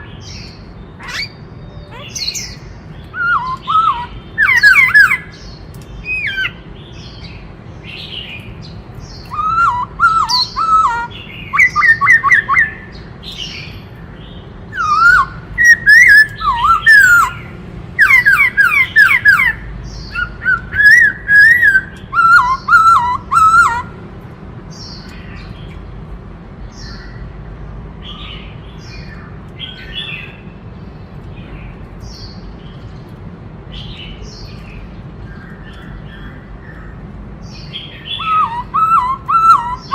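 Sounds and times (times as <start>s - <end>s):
soft bird chirps: 0.0s - 24.0s, 28.1s - 39.9s
bird singing whistled phrases: 1.0s - 5.3s, 9.2s - 12.9s, 14.7s - 23.9s, 37.9s - 39.9s.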